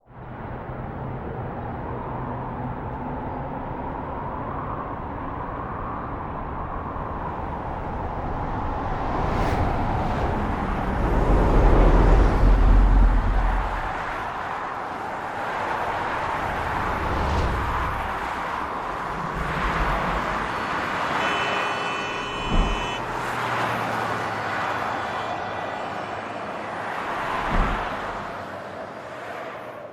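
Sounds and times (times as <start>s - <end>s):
wind rushing over microphone: 0.2s - 21.5s.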